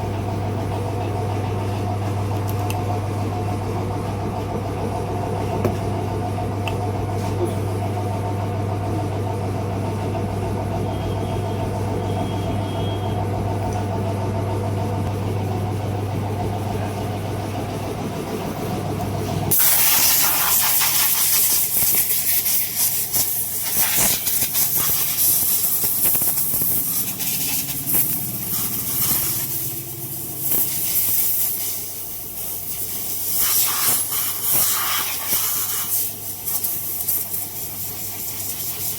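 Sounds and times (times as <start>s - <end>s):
low machine hum: 0.0s - 33.3s
hissing rush of air in pulses: 19.5s - 38.9s.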